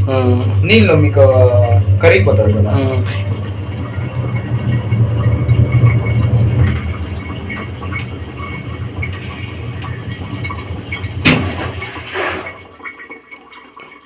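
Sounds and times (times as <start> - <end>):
washing machine humming: 0.0 - 13.6.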